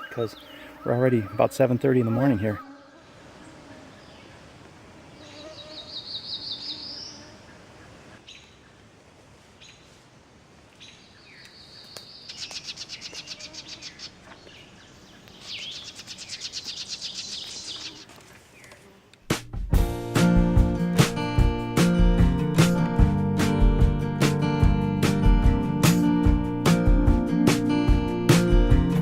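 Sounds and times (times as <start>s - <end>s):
songbirds singing: 0.0s - 8.8s, 10.8s - 18.8s.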